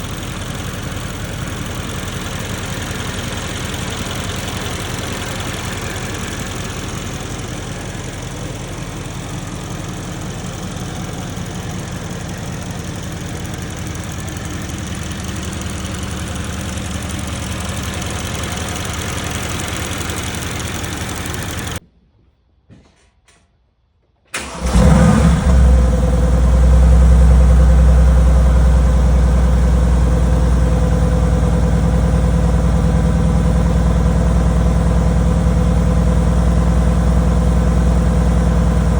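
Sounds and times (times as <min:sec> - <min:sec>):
car engine running: 0:00.0 - 0:21.8, 0:24.7 - 0:38.9
engine starting with loud flare: 0:24.4 - 0:28.2.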